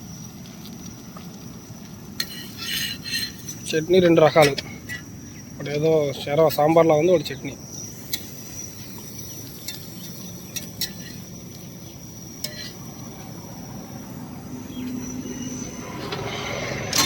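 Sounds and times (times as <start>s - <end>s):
high insect trill: 0.0s - 17.0s
low vehicle rumble: 12.7s - 17.0s.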